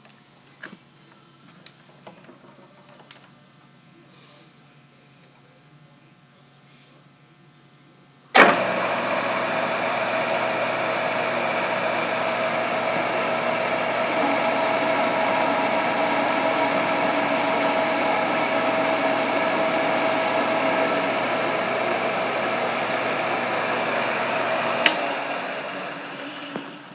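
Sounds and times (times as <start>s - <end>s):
metal lathe running with whine: 8.4s - 26.9s.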